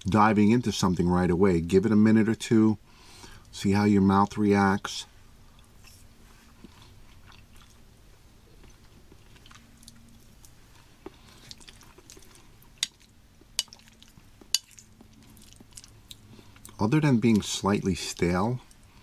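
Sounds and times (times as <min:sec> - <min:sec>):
faint chewing: 0:05.4 - 0:19.0.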